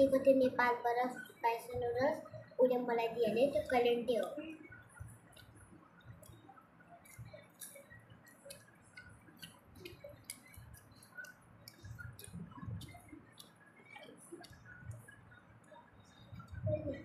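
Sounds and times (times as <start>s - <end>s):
children chewing with smacking: 4.2s - 17.0s.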